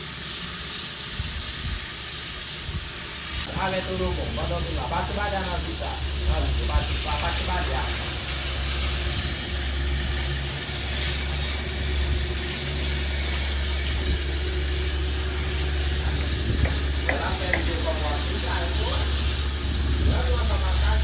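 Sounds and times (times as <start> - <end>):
machine humming and hissing: 0.0 - 21.0
voices: 3.5 - 8.4, 15.2 - 21.0.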